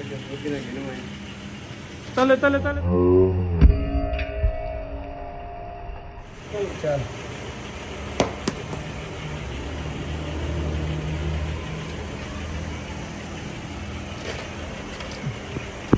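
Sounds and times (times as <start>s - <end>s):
tractor engine running: 0.0s - 2.9s, 6.2s - 15.9s.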